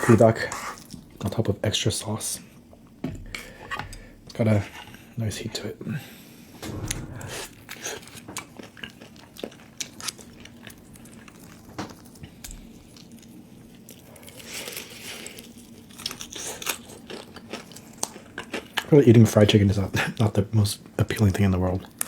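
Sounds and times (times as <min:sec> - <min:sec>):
crunchy chewing: 0:08.1 - 0:19.0.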